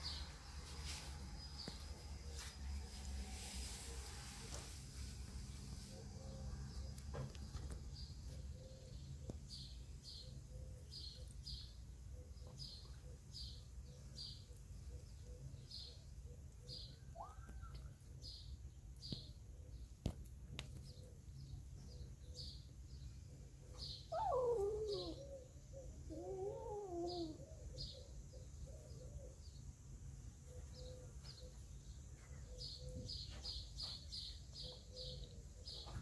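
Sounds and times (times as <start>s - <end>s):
small bird chirping: 30.4s - 36.0s.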